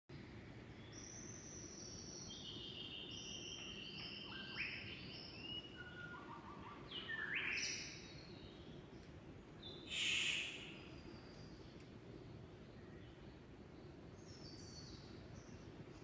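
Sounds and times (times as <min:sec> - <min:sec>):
low background noise: 0:00.1 - 0:16.0
birds whistling calls: 0:01.0 - 0:08.6, 0:09.7 - 0:11.5.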